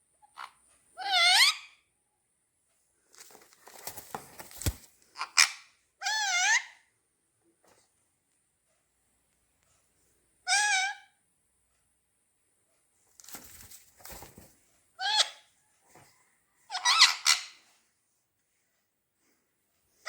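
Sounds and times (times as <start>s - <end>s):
parrots squawking: 0.4s - 1.7s, 5.2s - 6.8s, 10.5s - 11.1s, 16.7s - 17.6s
rustling scuffle: 3.2s - 4.9s.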